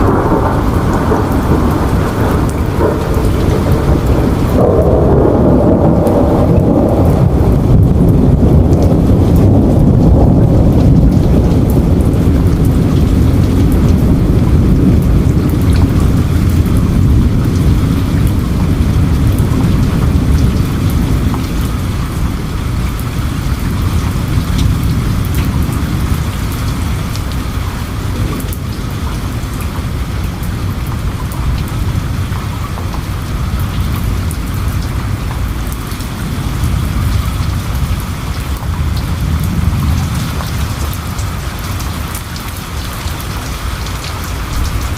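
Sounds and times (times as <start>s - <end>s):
distant thunder rumbling: 0.0s - 44.9s
heavy rain with ticking drops: 0.0s - 44.9s.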